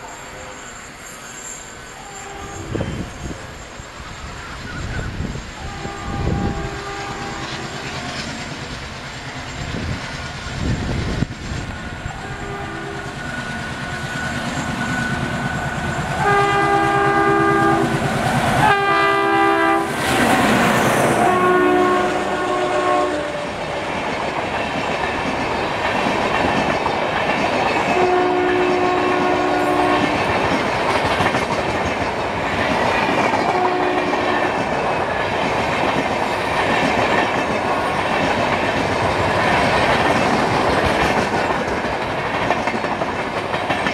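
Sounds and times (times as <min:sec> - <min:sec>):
locomotive horn blasts: 0:02.0 - 0:03.2, 0:05.6 - 0:08.1, 0:12.1 - 0:13.2, 0:16.2 - 0:23.5, 0:27.9 - 0:30.4, 0:33.5 - 0:34.6
wheels clattering on rail joints: 0:28.7 - 0:43.9.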